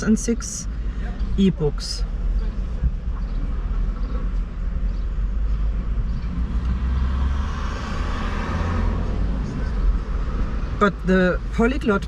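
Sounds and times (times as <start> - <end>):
road traffic rumble: 0.0 - 12.0
vehicle passing: 5.3 - 10.8.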